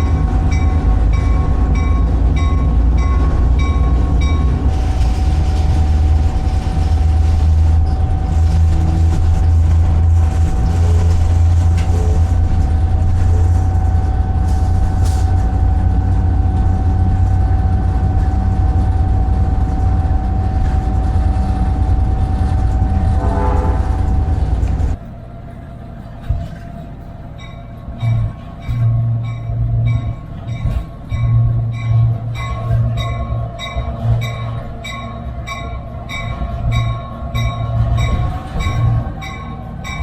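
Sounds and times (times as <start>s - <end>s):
diesel locomotive droning: 0.0s - 40.0s.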